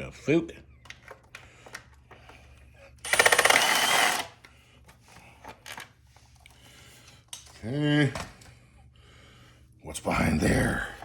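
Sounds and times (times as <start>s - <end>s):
power tool rattling buzz: 3.0s - 4.4s.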